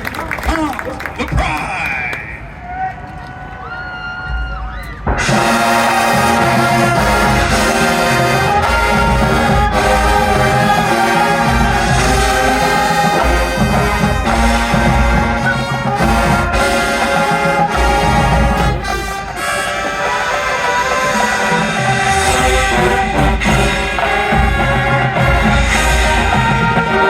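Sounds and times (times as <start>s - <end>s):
drum hits: 4.4s - 19.4s, 21.8s - 27.0s
brass chords: 5.0s - 27.0s.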